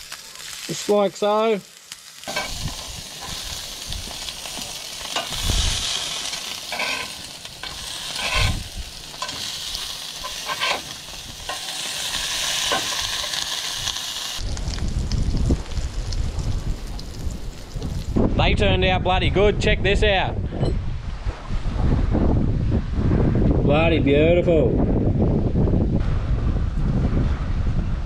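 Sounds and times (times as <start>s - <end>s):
food sizzling in oil: 0.0s - 18.2s
metal spatula scraping a pan: 2.3s - 3.5s, 5.0s - 13.4s
wind rumbling on microphone: 2.3s - 28.0s.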